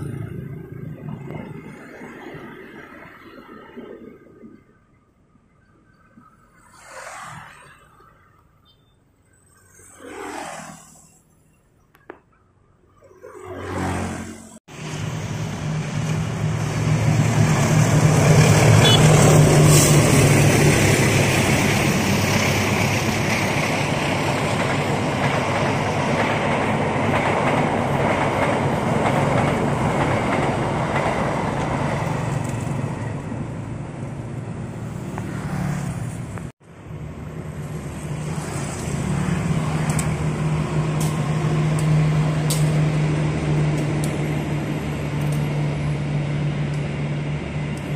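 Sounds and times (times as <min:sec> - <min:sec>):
train coaches rumbling on rails: 0:00.0 - 0:04.6, 0:14.7 - 0:47.9
diesel locomotive passing: 0:00.0 - 0:05.0, 0:12.9 - 0:47.9.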